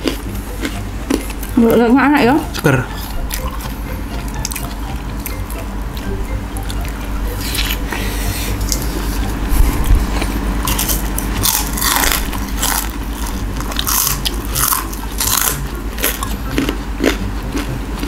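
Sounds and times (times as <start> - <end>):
person chewing crunchy crackers: 0.0 - 1.8, 2.4 - 18.0.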